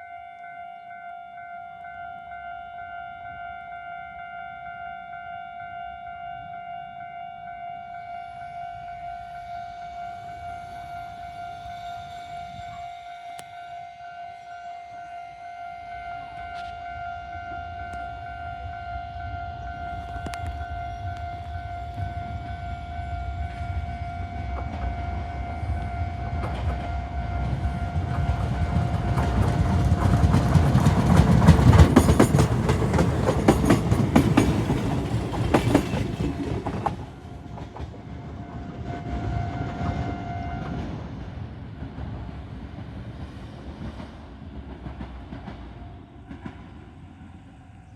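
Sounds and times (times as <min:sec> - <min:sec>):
train running past: 0:00.0 - 0:47.9
wheels clicking over rail joints: 0:26.3 - 0:38.8.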